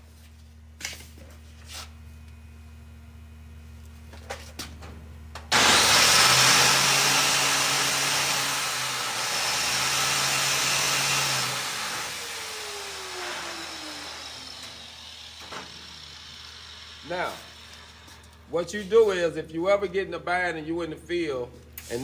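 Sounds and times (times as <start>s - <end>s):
angle grinder running: 5.5s - 18.4s.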